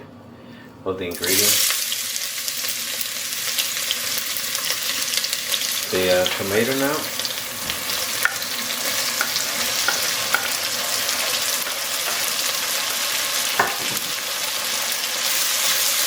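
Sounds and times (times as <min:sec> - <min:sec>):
vegetables sizzling in oil: 0:01.1 - 0:16.0
utensil knocking against pot: 0:13.6 - 0:14.1.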